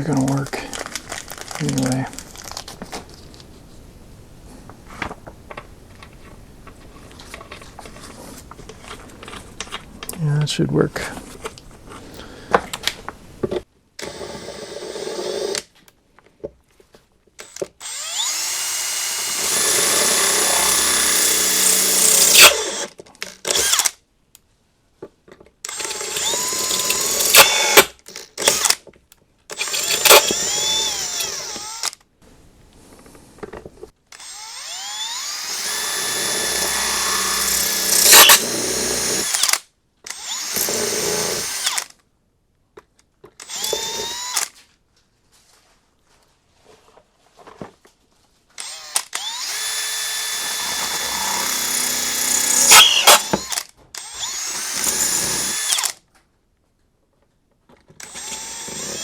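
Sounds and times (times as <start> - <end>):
power drill whining: 14.0 - 15.6, 17.4 - 23.9, 25.7 - 28.8, 29.5 - 32.0, 34.2 - 41.9, 43.4 - 44.6, 48.6 - 56.0, 58.0 - 59.0.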